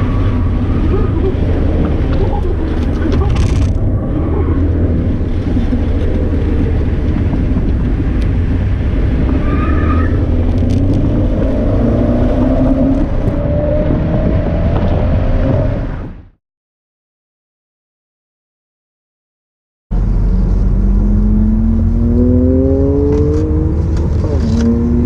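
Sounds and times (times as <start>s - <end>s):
car engine from inside cabin: 0.0s - 9.4s, 20.0s - 25.0s.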